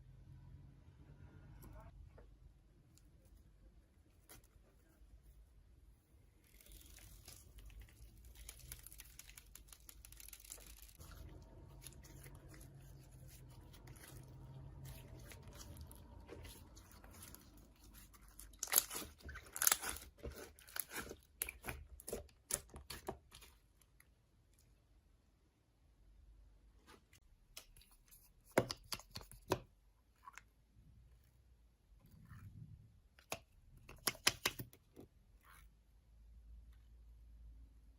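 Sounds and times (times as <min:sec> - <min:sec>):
slime rustling and crinkling: 0:06.0 - 0:23.7.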